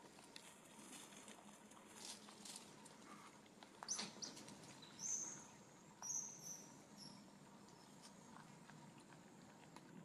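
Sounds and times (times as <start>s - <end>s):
faint outdoor ambience: 0.0s - 10.0s
small birds chirping: 3.8s - 10.0s.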